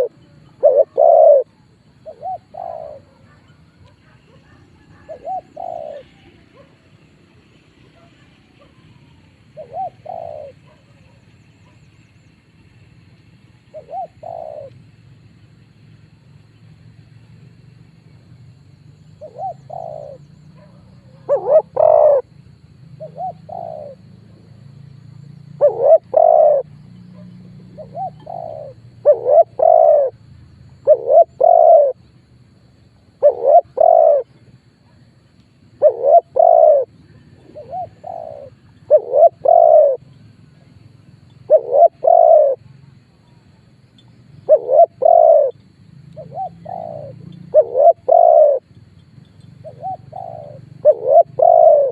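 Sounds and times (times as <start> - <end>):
dove cooing: 0.0 - 7.0, 7.8 - 11.8, 13.7 - 14.8, 19.2 - 22.4, 23.0 - 24.5, 25.5 - 30.2, 30.8 - 32.4, 33.1 - 34.4, 35.8 - 40.2, 41.2 - 42.7, 44.4 - 48.7, 49.6 - 51.9.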